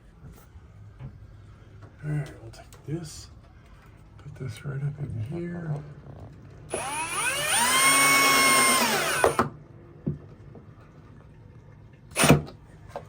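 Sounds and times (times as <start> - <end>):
electric drill motor spinning: 6.7 - 9.5.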